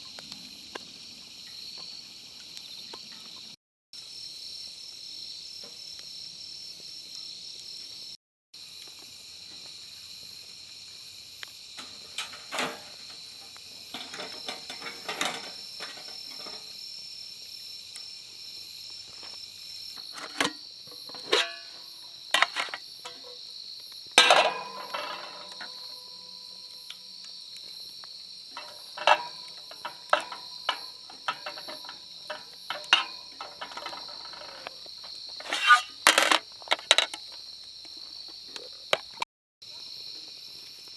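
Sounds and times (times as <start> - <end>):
insects chirring: 0.0 - 40.9
sharp clicks and knocks: 11.8 - 16.7, 20.0 - 23.4, 24.2 - 27.0, 28.6 - 37.4.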